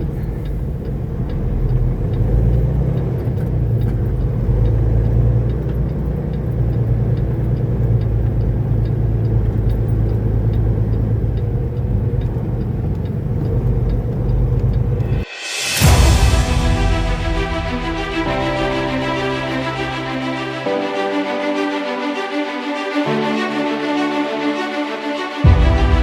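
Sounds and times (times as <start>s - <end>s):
diesel truck engine rumbling: 0.0s - 15.2s
faint regular ticking: 0.0s - 15.3s.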